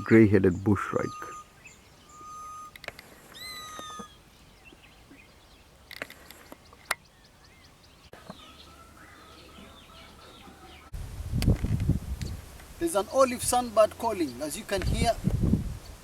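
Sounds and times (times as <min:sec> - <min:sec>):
birds whistling: 0:00.5 - 0:10.9
faint bird chirps: 0:00.5 - 0:10.9.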